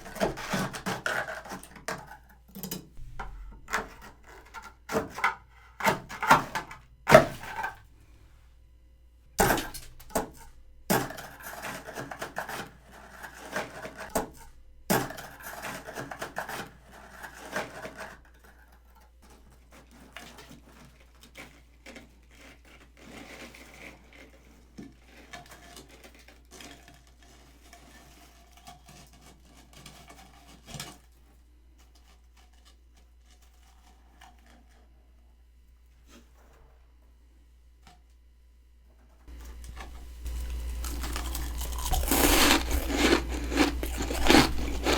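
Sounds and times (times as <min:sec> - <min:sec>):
frost crunching and rustling: 0:00.0 - 0:01.6, 0:39.3 - 0:44.9.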